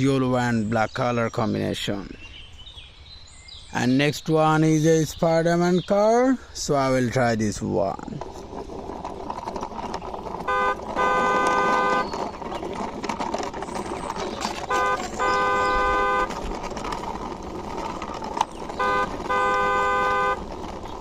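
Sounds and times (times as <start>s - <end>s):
car horn beeping: 10.4s - 12.2s, 14.4s - 16.6s, 18.6s - 20.6s.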